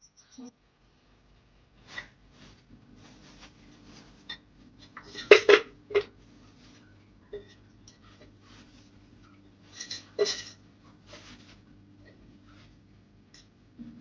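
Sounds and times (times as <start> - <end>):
low steady hum: 0.0 - 14.0
household objects clicking and knocking: 4.2 - 6.2.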